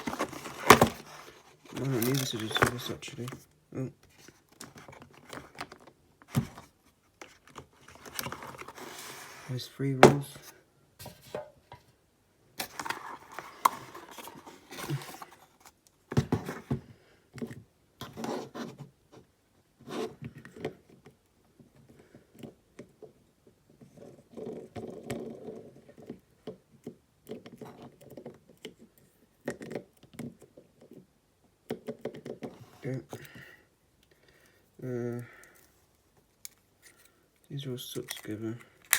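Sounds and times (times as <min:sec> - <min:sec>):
packaging and tape handled: 0:00.0 - 0:03.4, 0:04.1 - 0:10.5, 0:12.6 - 0:16.7, 0:37.9 - 0:38.9.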